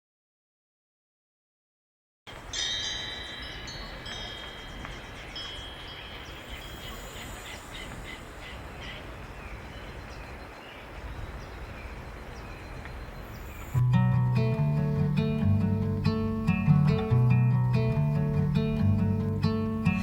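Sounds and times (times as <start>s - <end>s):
high ringing chimes: 2.3s - 8.4s
steady outdoor hiss: 2.3s - 20.0s.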